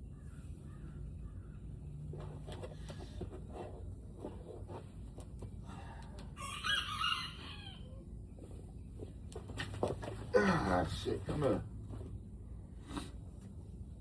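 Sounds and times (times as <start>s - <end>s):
rooster crowing: 6.4s - 8.0s.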